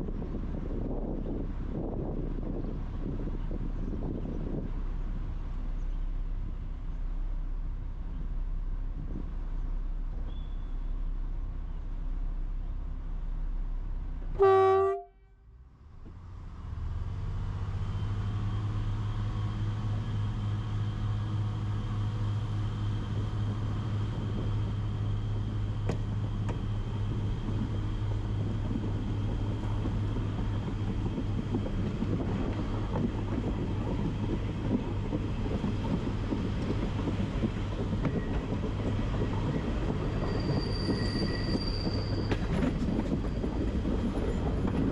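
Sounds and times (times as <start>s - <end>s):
rolling rumble: 0.0s - 14.5s, 15.5s - 44.9s
train engine drone: 0.0s - 44.9s
train horn blast: 14.4s - 15.4s.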